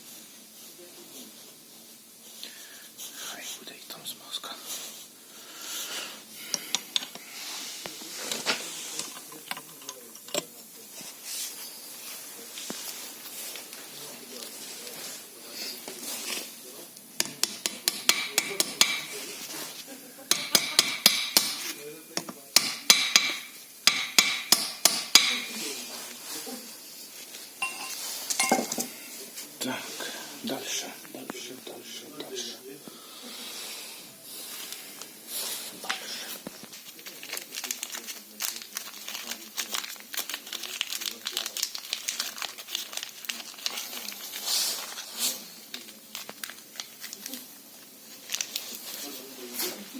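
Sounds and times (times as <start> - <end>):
clicks and rustling of handled parts: 8.3 - 10.5
hammer tapping on metal: 17.2 - 19.2, 20.3 - 25.6.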